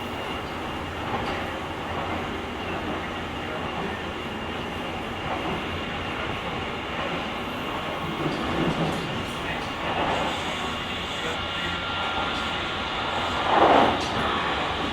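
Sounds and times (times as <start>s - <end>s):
train wheels on rail: 0.0s - 14.9s
rush of moving carriage: 7.0s - 14.9s.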